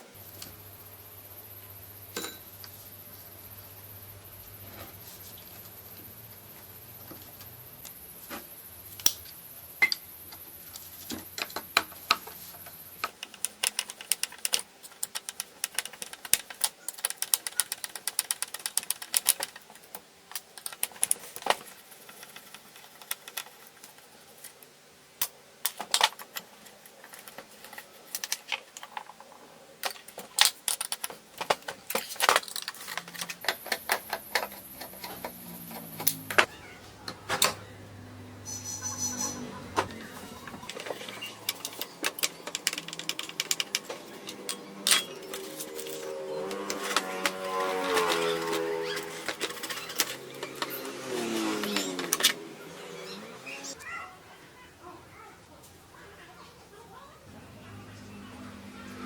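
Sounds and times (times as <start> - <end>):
steady hum with high whine: 0.0 - 38.8.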